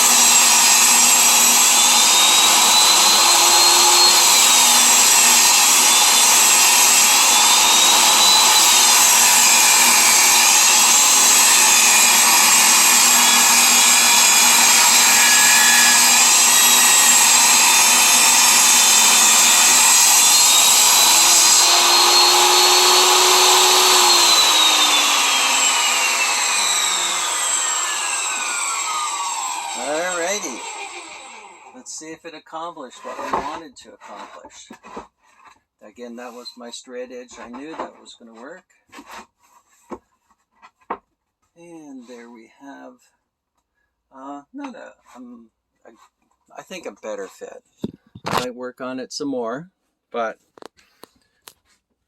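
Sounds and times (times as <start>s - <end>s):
table saw ripping wood: 0.0s - 31.8s, 33.0s - 35.1s
table saw winding down: 0.0s - 31.8s.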